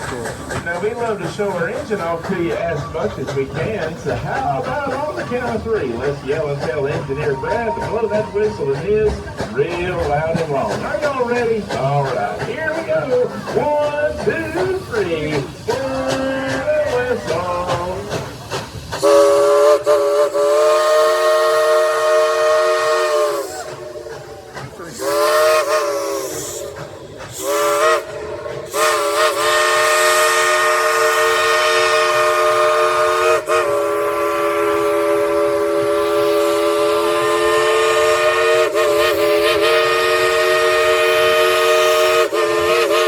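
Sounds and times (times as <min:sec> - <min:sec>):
steam hissing: 0:00.0 - 0:43.0
steam locomotive chime whistle: 0:06.9 - 0:08.8, 0:19.0 - 0:24.0, 0:24.9 - 0:26.8, 0:27.4 - 0:43.0.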